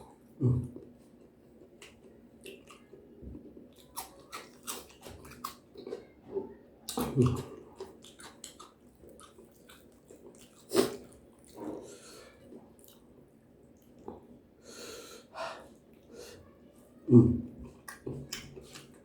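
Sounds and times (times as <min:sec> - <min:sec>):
chewing with wet mouth clicks: 0:00.7 - 0:06.1, 0:06.9 - 0:11.8, 0:12.5 - 0:14.3, 0:17.6 - 0:19.0.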